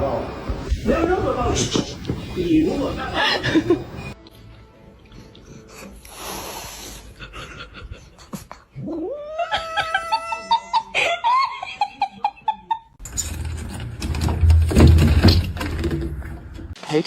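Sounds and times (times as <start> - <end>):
cat yowling: 8.8 - 10.7.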